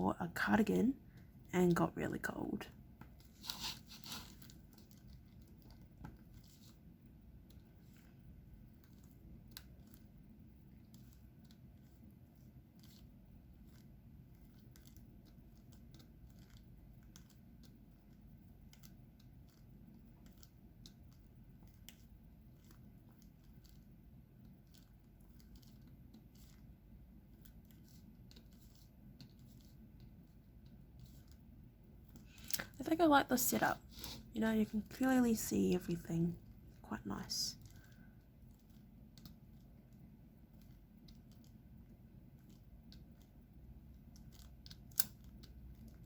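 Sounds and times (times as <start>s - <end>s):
low room hum: 0.0s - 46.0s
small clicks and taps of a pen: 37.6s - 46.0s.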